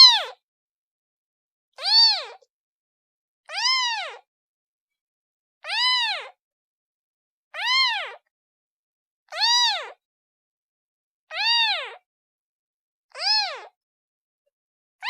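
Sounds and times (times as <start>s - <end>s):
kitten meowing: 0.0s - 0.4s, 1.8s - 2.4s, 3.5s - 4.2s, 5.7s - 6.4s, 7.6s - 8.2s, 9.3s - 10.0s, 11.3s - 12.0s, 13.2s - 13.7s.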